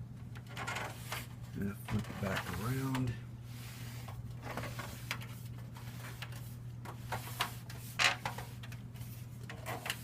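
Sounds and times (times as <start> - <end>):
steady low hum: 0.0 - 10.0
fan knocks and rattles: 0.2 - 3.2.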